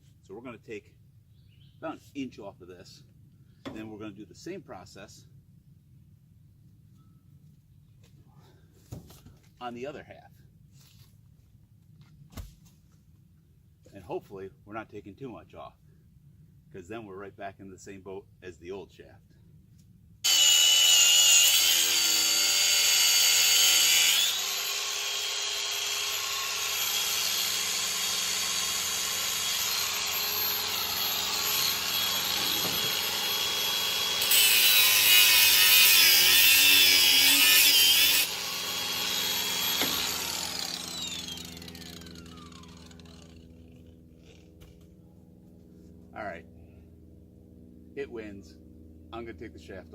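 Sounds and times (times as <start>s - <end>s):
power tool cutting steel tube: 20.2s - 44.4s.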